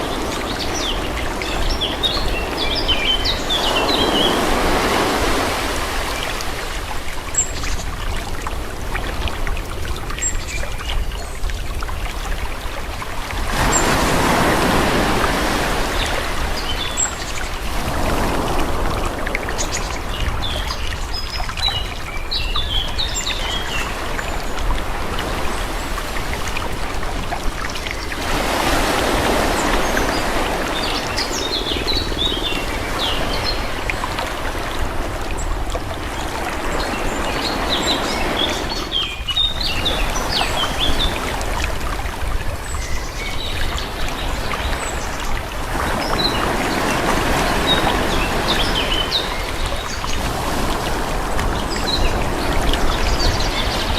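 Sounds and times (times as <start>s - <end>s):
small birds chirping: 0.0s - 5.2s, 27.7s - 34.2s
sea waves washing: 0.0s - 10.3s, 11.4s - 53.9s.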